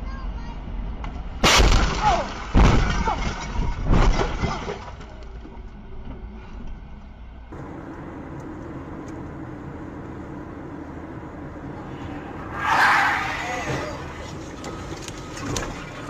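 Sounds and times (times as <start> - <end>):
car engine and road noise: 0.0 - 1.5, 5.0 - 16.0
car crash impact: 1.4 - 5.1, 12.2 - 16.0.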